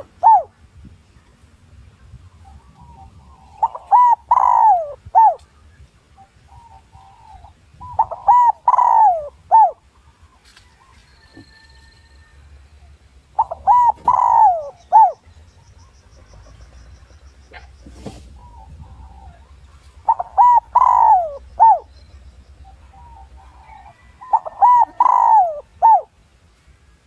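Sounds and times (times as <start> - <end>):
dove cooing: 0.0 - 0.6, 2.5 - 5.4, 6.2 - 9.9, 13.3 - 26.2.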